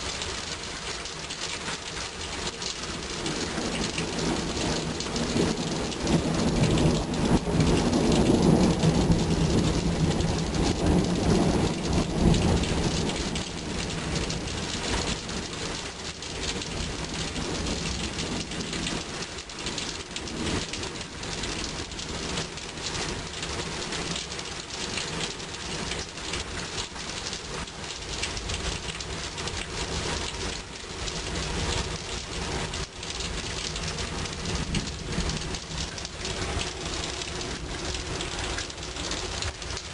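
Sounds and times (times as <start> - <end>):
rain falling steadily: 0.0 - 39.9
thunder rumbling: 2.9 - 15.3, 33.4 - 39.9.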